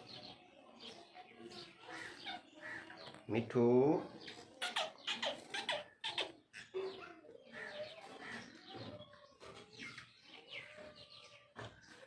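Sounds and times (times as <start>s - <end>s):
parrots chirping and squawking: 1.9s - 3.2s, 4.2s - 8.7s.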